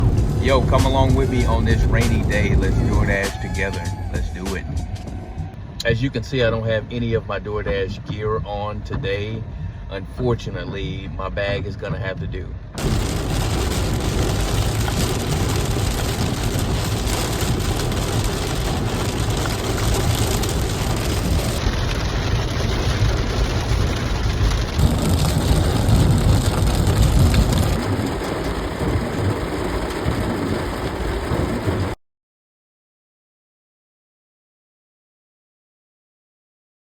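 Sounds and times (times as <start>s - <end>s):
heavy rain falling: 0.0s - 4.7s, 12.8s - 32.0s.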